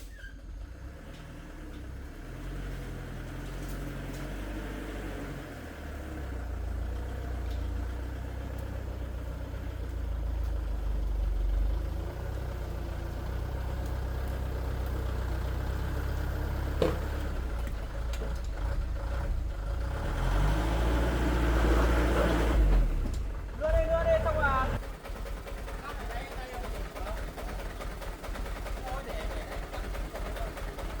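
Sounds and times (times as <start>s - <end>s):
vehicle engine rumbling: 0.0s - 31.0s.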